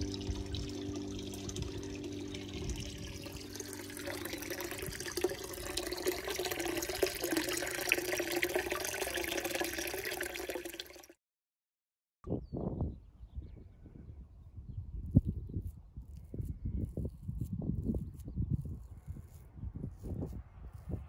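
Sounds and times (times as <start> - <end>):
water running and splashing: 0.0 - 11.1.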